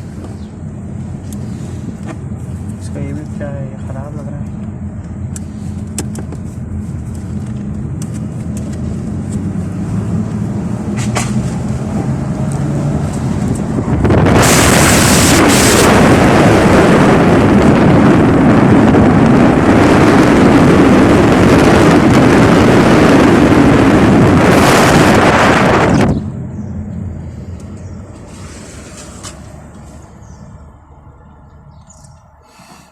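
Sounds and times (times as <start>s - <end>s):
car engine hum: 0.0s - 32.9s
wind and road noise: 0.0s - 32.9s.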